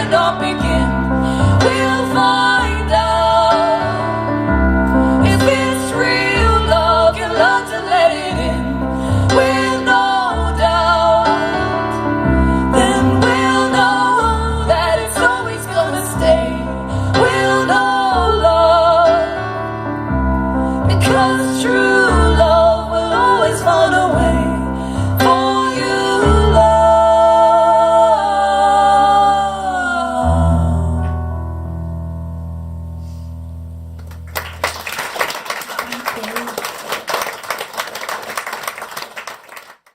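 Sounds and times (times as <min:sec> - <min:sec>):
women singing with vibrato: 0:00.0 - 0:04.4, 0:05.0 - 0:19.8, 0:20.9 - 0:31.3
piano chords: 0:00.0 - 0:36.0.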